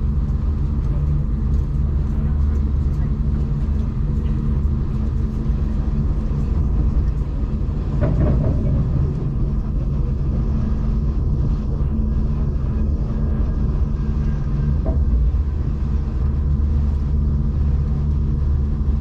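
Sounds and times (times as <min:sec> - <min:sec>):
train rumbling on board: 0:00.0 - 0:19.0
train rattle: 0:02.1 - 0:12.4.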